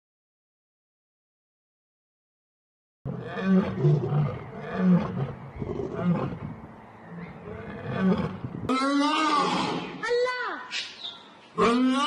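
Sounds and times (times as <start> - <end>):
large animal deep calls: 3.1 - 10.0, 11.5 - 12.0.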